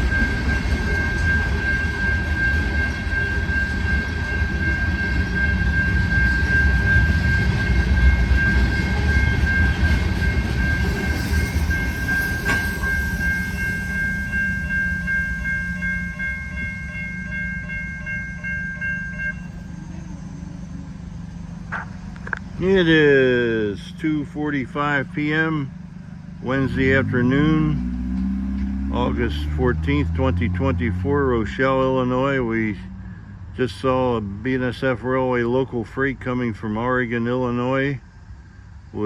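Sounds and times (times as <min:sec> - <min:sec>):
steady high-pitched tone: 0:00.0 - 0:27.8
train wheels rumbling on rail: 0:00.0 - 0:39.0.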